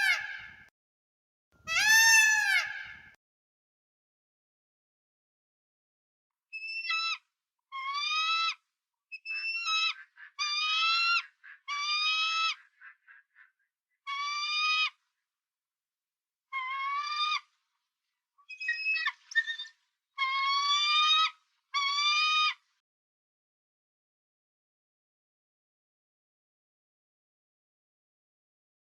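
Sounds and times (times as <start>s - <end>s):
high-pitched animal calls: 1.7s - 3.1s, 18.5s - 22.3s.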